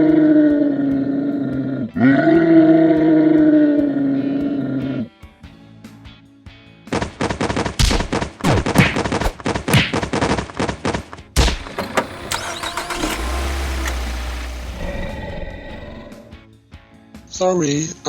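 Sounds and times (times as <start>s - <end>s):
background music: 0.0s - 12.3s, 13.0s - 18.0s.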